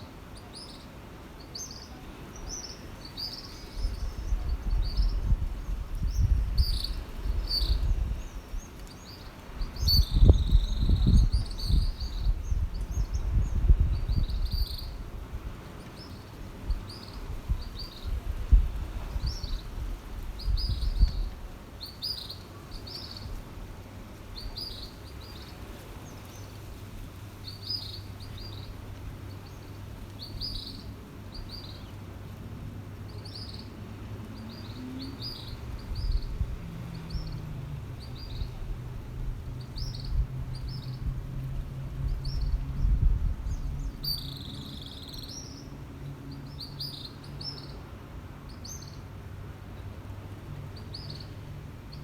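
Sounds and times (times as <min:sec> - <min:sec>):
small birds chirping: 0:00.3 - 0:23.6, 0:24.2 - 0:47.9
wind rumbling: 0:03.7 - 0:08.7, 0:33.9 - 0:44.2.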